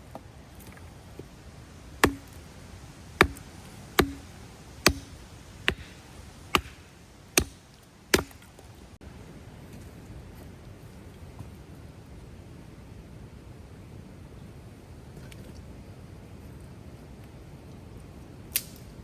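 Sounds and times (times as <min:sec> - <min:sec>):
axe chopping firewood: 0:00.0 - 0:08.8.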